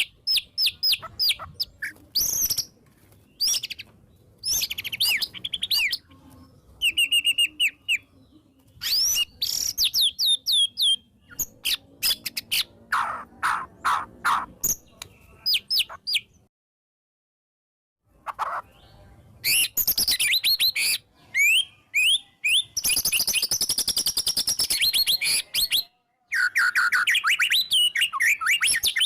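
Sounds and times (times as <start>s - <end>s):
bird singing whistles: 6.8s - 8.0s, 8.8s - 12.2s, 19.4s - 29.0s.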